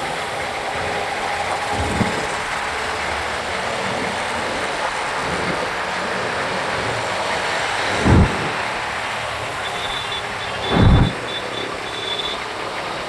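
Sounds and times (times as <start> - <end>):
wind and road noise: 7.7 - 8.9, 10.6 - 11.2
low thump: 7.9 - 8.7, 10.7 - 11.2.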